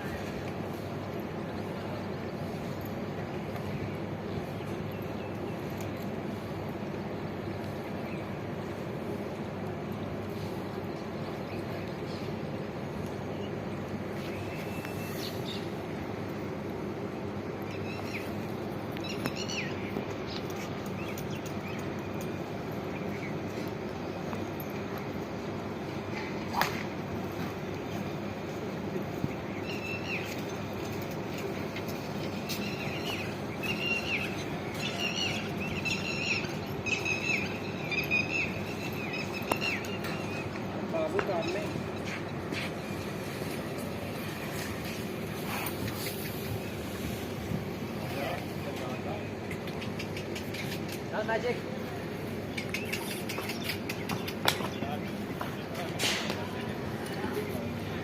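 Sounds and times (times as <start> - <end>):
birds chirping: 0.0 - 58.0
low background noise: 0.0 - 58.0
bird chirping: 32.0 - 40.6.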